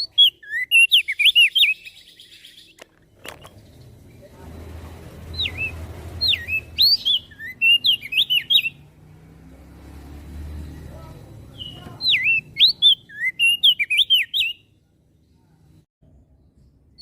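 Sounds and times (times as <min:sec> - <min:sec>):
bird singing whistled notes: 0:00.0 - 0:04.3, 0:05.2 - 0:08.9, 0:10.5 - 0:14.7.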